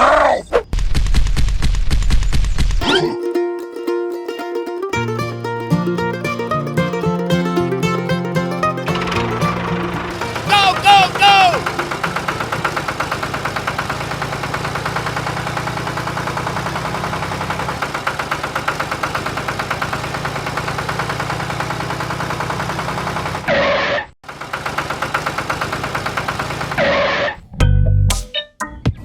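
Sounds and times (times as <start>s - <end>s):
tractor engine chugging: 5.0s - 23.5s, 24.2s - 27.2s.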